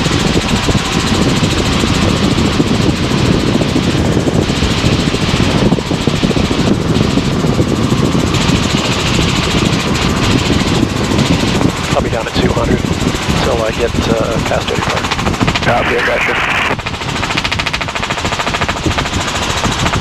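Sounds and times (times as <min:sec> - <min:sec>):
helicopter engine and rotor: 0:00.0 - 0:20.0
loud rushing noise: 0:11.0 - 0:20.0.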